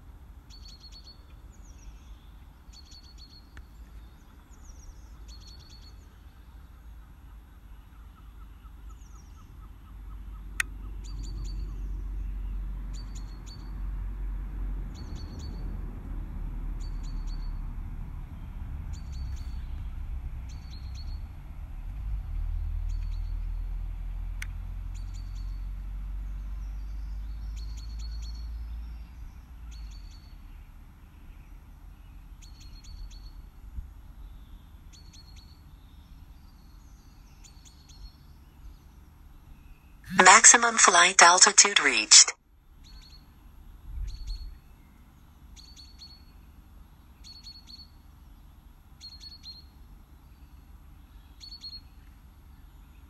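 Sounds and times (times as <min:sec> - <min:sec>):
sharp clicks: 0:40.2 - 0:42.4
small bird chirping: 0:49.0 - 0:49.7, 0:50.4 - 0:52.0.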